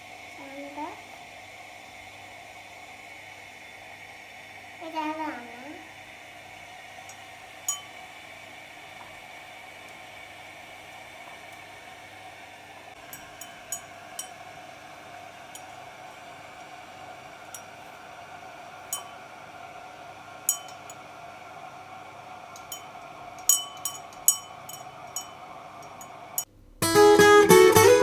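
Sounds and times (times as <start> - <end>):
steady low hum: 10.8 - 26.9
dishes clinking together: 20.5 - 21.0, 22.6 - 25.4.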